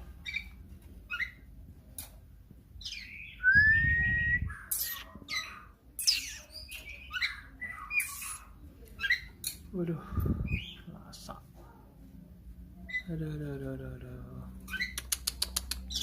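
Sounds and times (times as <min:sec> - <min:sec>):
otter chirping and squeaking: 0:00.2 - 0:01.5, 0:04.4 - 0:09.6, 0:12.8 - 0:13.2, 0:14.6 - 0:16.0
low rumbling noise: 0:03.4 - 0:04.7.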